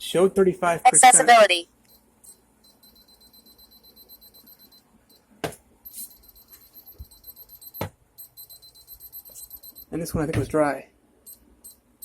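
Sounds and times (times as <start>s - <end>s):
moisture meter pulsing beep: 1.8s - 10.0s, 11.3s - 12.0s.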